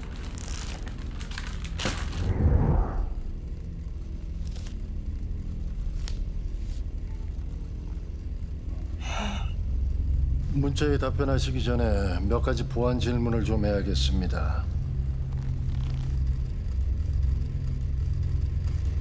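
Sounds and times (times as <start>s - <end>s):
low rumble: 0.0s - 11.8s.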